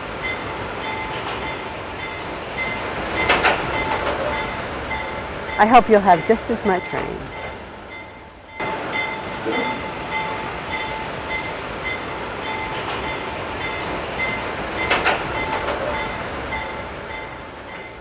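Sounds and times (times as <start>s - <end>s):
train coaches rolling past: 0.0s - 18.0s
train wheel clicks: 0.3s - 5.2s, 11.4s - 18.0s.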